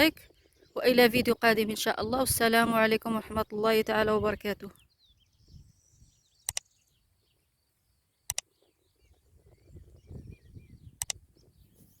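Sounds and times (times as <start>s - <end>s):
birds chirping and calling: 0.0s - 12.0s
sharp double click: 6.4s - 6.7s, 8.3s - 8.5s, 11.0s - 11.2s.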